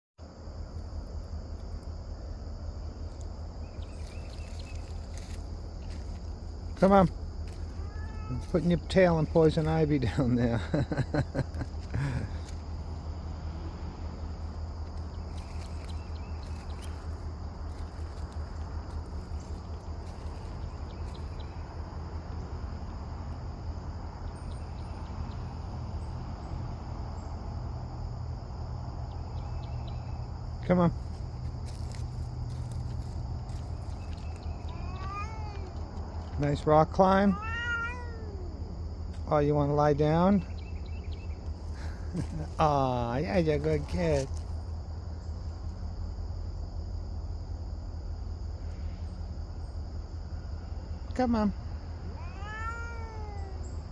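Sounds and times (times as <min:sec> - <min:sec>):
crickets droning: 0:00.2 - 0:53.9
insects trilling: 0:00.2 - 0:53.9
faint chirps: 0:03.0 - 0:12.7, 0:14.7 - 0:21.7
small ticks: 0:03.1 - 0:08.6, 0:14.7 - 0:21.6, 0:31.0 - 0:36.6.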